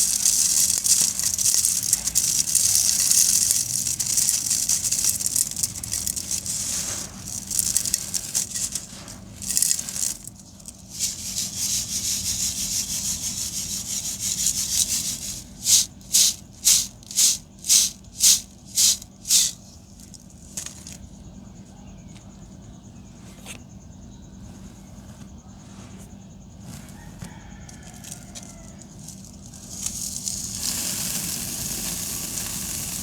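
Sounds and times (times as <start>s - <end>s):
concrete crumbling gritty crackle: 0.0s - 11.6s, 27.8s - 33.0s
short crunches: 0.0s - 11.6s.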